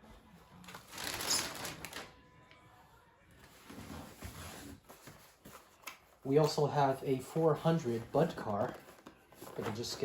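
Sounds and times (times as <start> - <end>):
packaging rustling with clicks: 0.7 - 2.1
boxes shuffling: 3.4 - 10.0.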